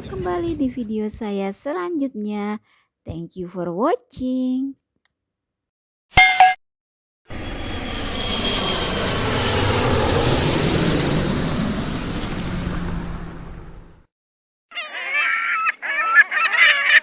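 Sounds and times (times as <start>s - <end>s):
engine rushing past: 7.4s - 14.0s.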